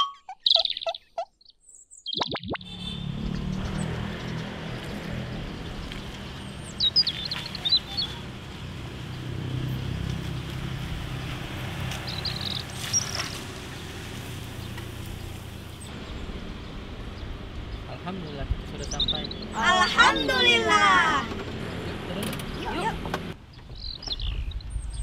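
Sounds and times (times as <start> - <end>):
small birds chirping: 0.0 - 25.0
car engine humming: 2.7 - 23.4.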